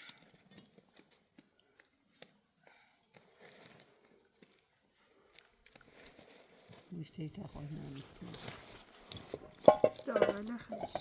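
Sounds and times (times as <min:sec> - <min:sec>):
cricket trilling: 0:00.0 - 0:11.0.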